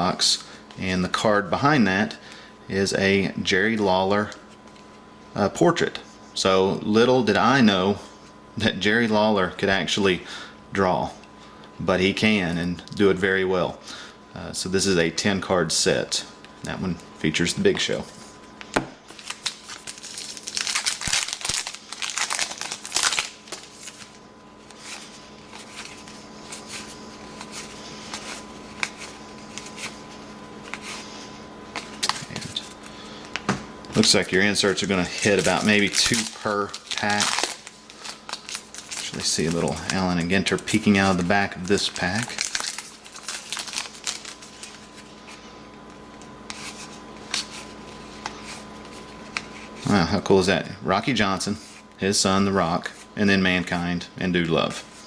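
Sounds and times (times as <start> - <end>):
faint steady hum: 0.0 - 55.0
cards rustling: 16.4 - 50.0
wrapper crinkling: 18.6 - 31.1, 31.8 - 33.4, 34.0 - 45.4.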